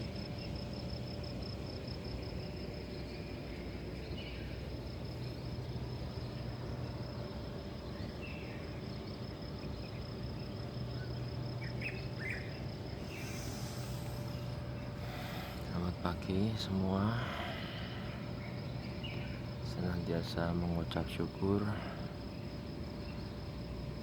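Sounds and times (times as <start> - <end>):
crickets trilling: 0.0 - 24.0
low background hum: 0.0 - 24.0
short bird chirps: 13.0 - 15.8.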